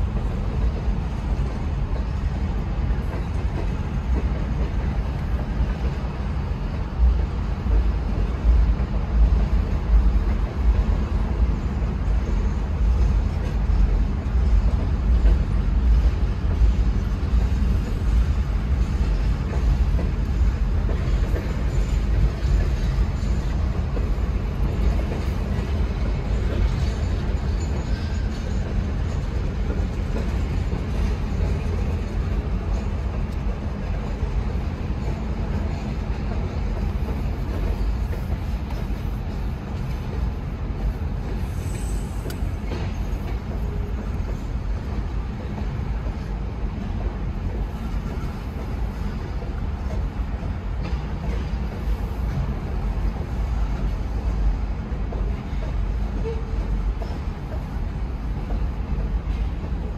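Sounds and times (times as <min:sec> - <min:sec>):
train wheels rumbling on rails: 0:00.0 - 0:59.9
high wheel squeal: 0:41.4 - 0:43.4.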